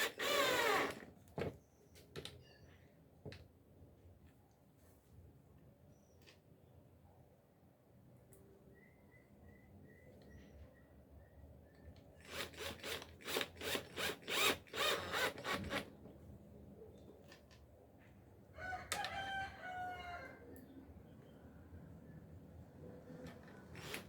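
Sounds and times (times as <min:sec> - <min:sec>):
rooster crowing: 0:18.5 - 0:20.5.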